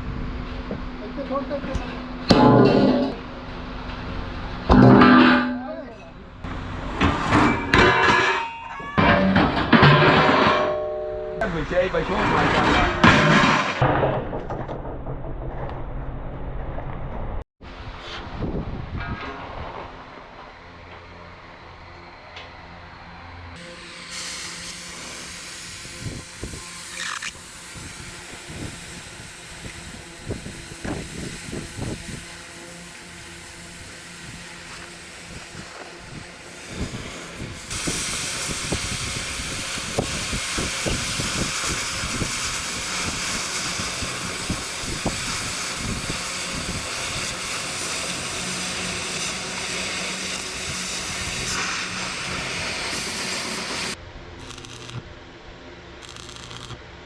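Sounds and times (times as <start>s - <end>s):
compressed air spray hiss: 23.7s - 54.0s.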